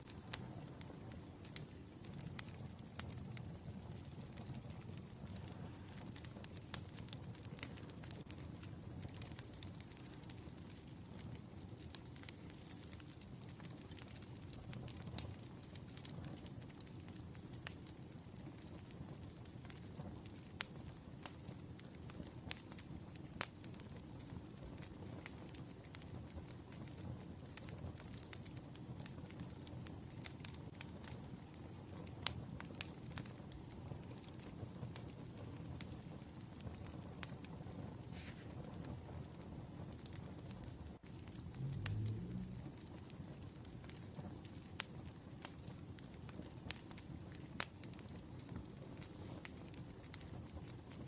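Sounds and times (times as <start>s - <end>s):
wood fire crackling and popping: 0.0s - 51.0s.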